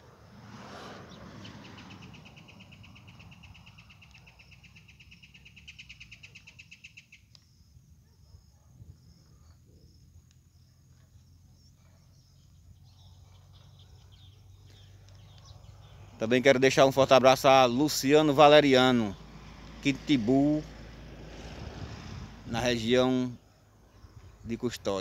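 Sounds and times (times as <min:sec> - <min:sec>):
bird singing a fast trill: 0:01.6 - 0:07.7
low outdoor rumble: 0:09.1 - 0:25.0.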